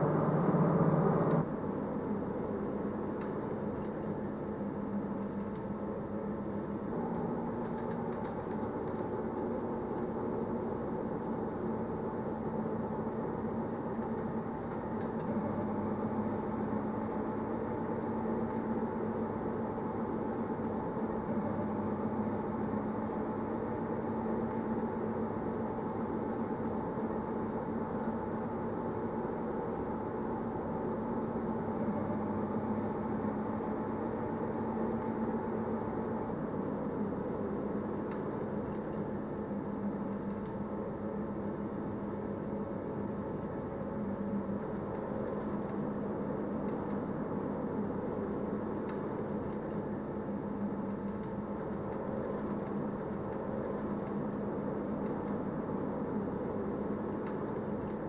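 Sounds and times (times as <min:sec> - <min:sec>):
train motor hum: 0:00.0 - 0:01.4.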